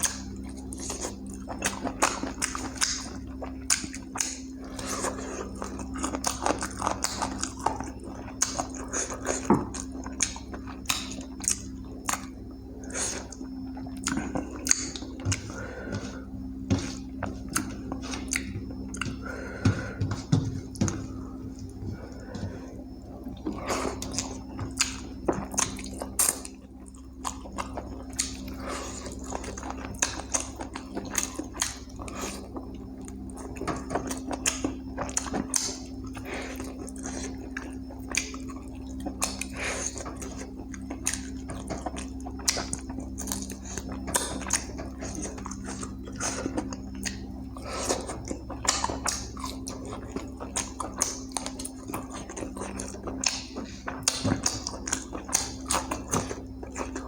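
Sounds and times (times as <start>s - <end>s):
person chewing food: 0.0s - 57.0s
steady low hum: 0.0s - 57.0s
wet smacks and clicks: 48.2s - 57.0s.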